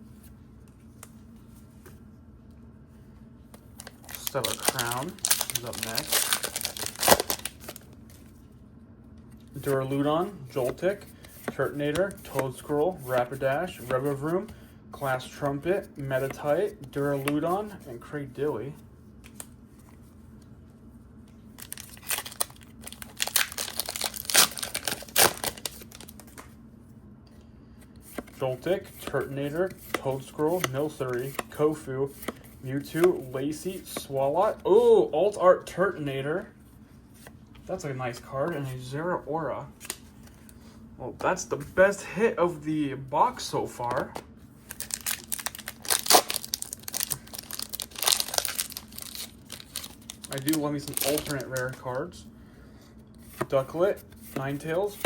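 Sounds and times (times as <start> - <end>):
foil wrapper crinkling and tearing: 3.8 - 8.0, 21.6 - 26.4, 44.6 - 51.8.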